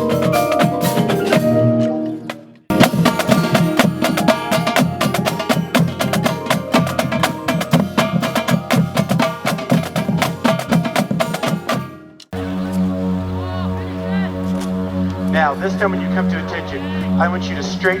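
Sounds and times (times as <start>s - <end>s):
marching band percussion: 0.0s - 12.0s.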